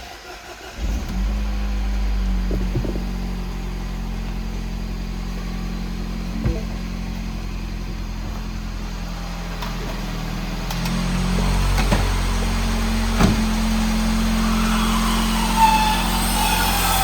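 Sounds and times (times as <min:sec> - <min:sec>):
car engine running: 0:00.4 - 0:17.0.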